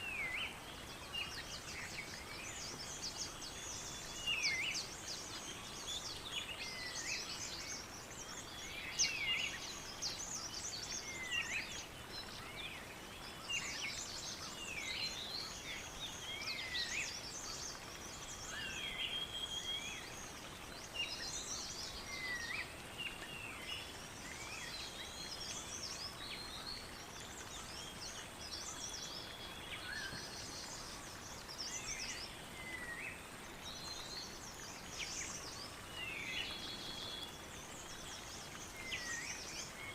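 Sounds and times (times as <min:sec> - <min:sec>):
faint outdoor hiss: 0:00.0 - 0:39.9
small birds chirping: 0:00.0 - 0:39.9.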